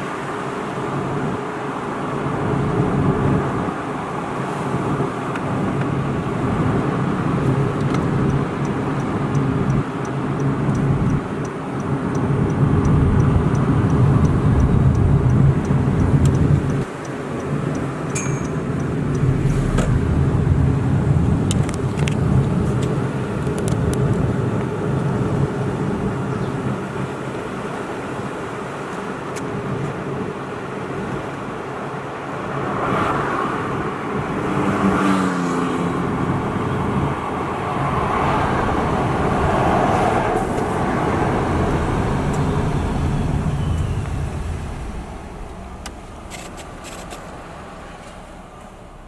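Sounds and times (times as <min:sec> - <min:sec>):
car engine and road noise: 0:00.0 - 0:49.0
faint regular ticking: 0:07.8 - 0:19.4.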